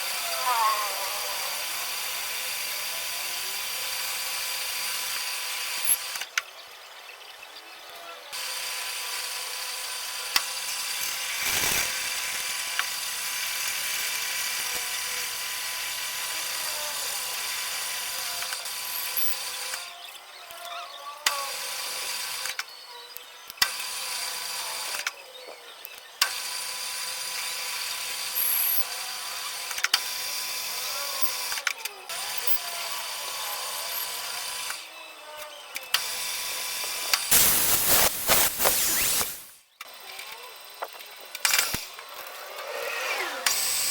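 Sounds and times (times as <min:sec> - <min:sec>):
electric motor whining: 0:00.0 - 0:06.3, 0:07.8 - 0:43.9.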